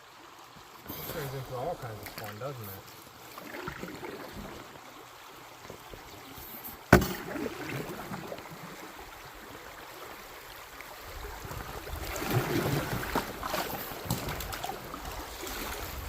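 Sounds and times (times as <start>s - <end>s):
paddle splashes: 0.4s - 16.0s
river water rushing: 6.8s - 16.0s
knock on canoe hull: 6.9s - 7.3s.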